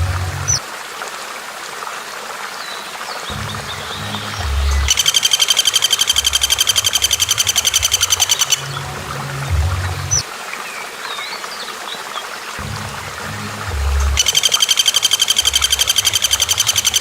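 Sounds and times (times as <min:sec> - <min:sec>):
low droning background: 0:00.0 - 0:00.6, 0:03.3 - 0:10.2, 0:12.6 - 0:14.6
bird trilled rattle: 0:04.9 - 0:08.6, 0:14.2 - 0:17.0.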